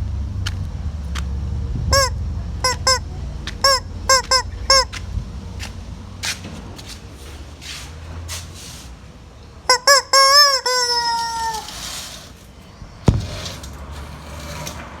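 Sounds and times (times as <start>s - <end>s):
chicken squawking: 1.9s - 5.0s, 9.7s - 11.9s.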